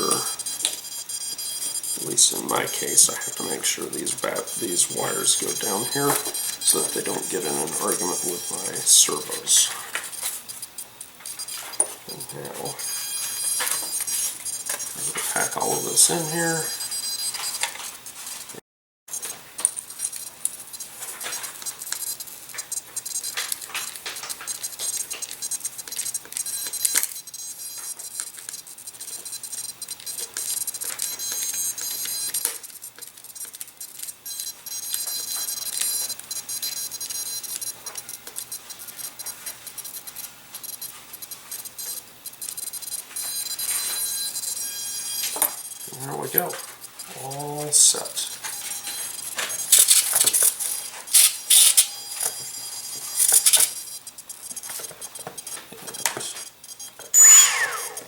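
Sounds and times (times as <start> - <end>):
high-pitched electronic whine: 0.0 - 17.9, 41.7 - 58.0
small clicks and rustles: 19.2 - 44.1.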